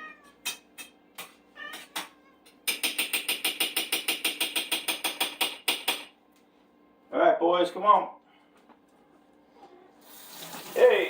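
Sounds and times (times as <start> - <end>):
cat meowing: 0.0 - 0.4, 1.6 - 2.5.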